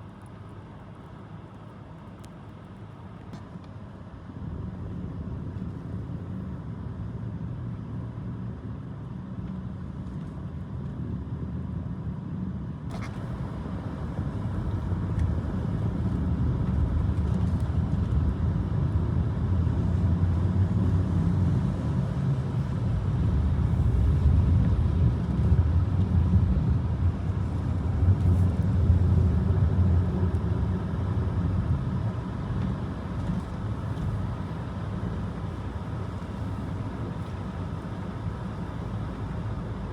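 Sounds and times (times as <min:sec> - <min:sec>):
vehicle engine rumbling: 0:12.9 - 0:39.9.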